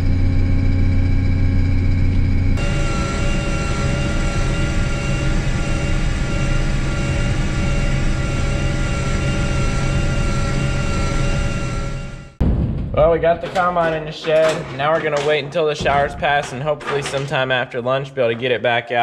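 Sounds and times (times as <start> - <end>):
combine diesel engine running: 0.0 - 12.4
high whining tones: 0.0 - 12.4.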